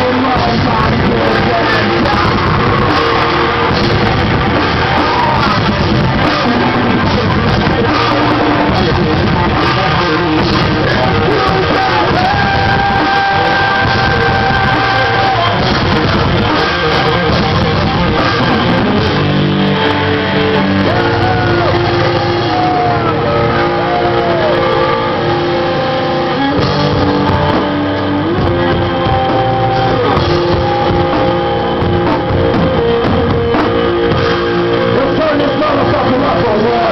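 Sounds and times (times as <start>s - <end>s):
person singing: 0.0s - 19.0s, 20.3s - 34.1s
live rock band playing: 0.0s - 36.9s.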